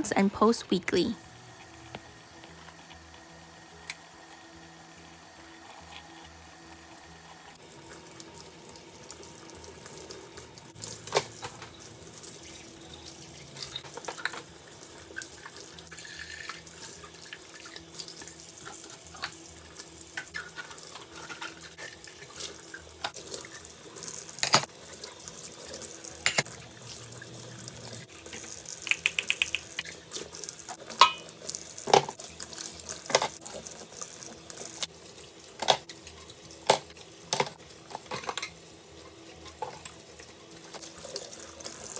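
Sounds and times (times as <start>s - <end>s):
tap water running into sink: 22.1s - 34.9s.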